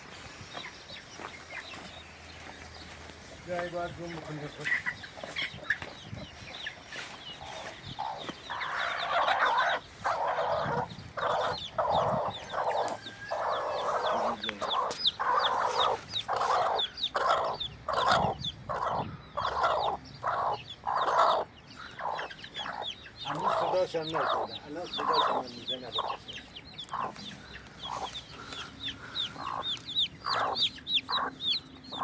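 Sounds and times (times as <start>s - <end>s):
chickens clucking: 0.0s - 32.0s
chicks peeping: 0.0s - 32.0s.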